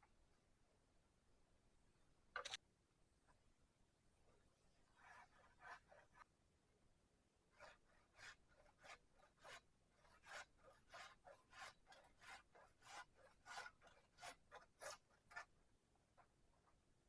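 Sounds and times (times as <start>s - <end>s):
faint rasping strokes: 4.3s - 6.3s, 7.5s - 15.6s.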